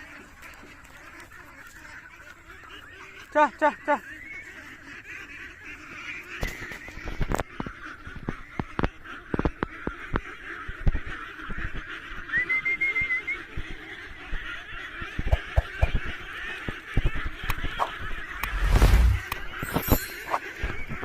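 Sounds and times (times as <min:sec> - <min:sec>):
ducks and chickens calling: 0:00.0 - 0:21.0.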